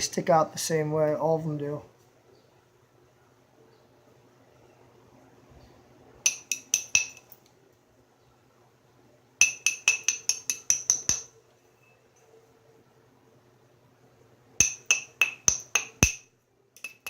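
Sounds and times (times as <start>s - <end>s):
hammerstone tapping flint: 6.3s - 7.4s, 9.4s - 11.3s, 14.6s - 16.2s, 16.8s - 17.0s.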